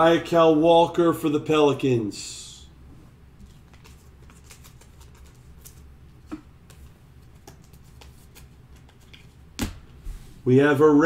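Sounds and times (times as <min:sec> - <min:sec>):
trading cards rustling: 0:03.4 - 0:09.8.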